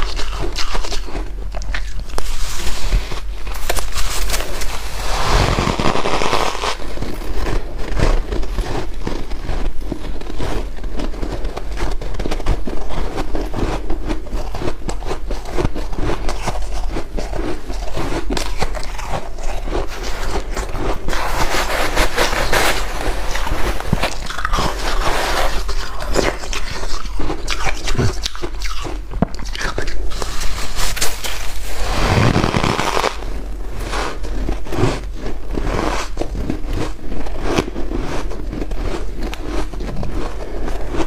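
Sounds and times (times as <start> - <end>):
ice crunching being chewed: 0.0 - 41.0.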